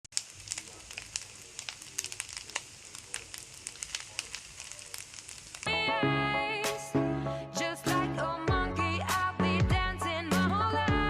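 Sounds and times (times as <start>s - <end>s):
food sizzling in hot oil: 0.0s - 5.8s.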